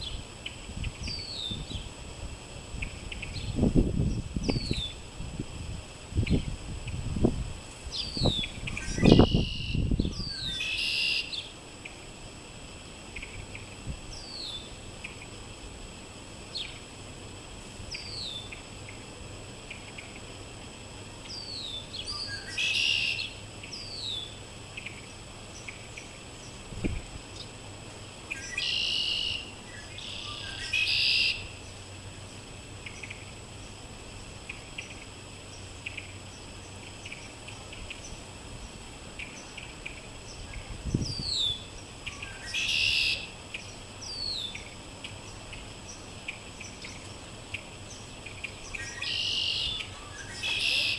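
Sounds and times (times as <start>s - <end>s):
buzzy trilled bird songs: 0.0s - 1.9s, 7.9s - 12.0s, 13.2s - 15.3s, 17.9s - 19.0s, 21.2s - 26.6s, 28.3s - 32.0s, 39.2s - 50.9s.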